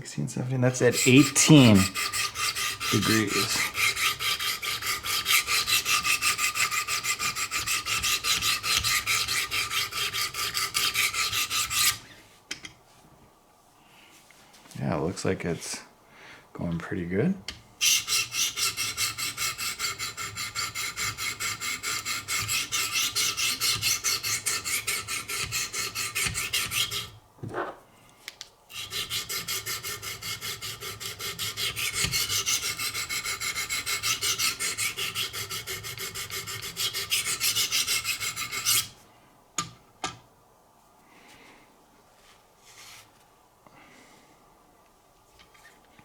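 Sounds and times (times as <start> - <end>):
stones rasping along knife steel: 0.8 - 12.0, 17.8 - 27.2, 28.7 - 39.0.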